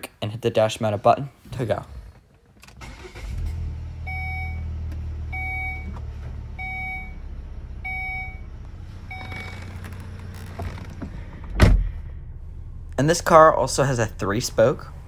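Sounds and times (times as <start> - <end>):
car engine starting and idling: 1.6 - 15.0
dashboard warning chime beeping: 4.1 - 6.0, 6.6 - 8.5, 9.1 - 9.8.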